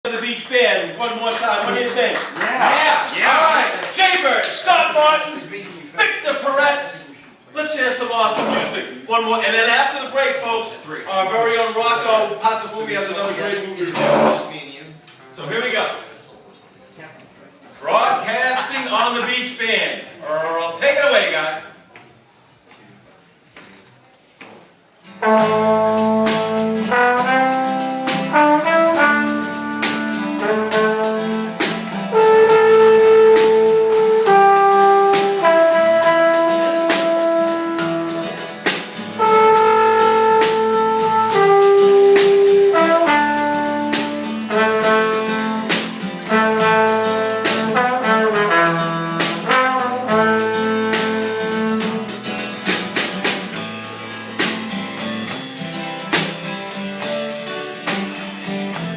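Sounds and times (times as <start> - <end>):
jazz band playing: 13.2 - 14.5, 25.1 - 58.9
horn melody of held notes: 25.2 - 38.5, 39.2 - 52.3.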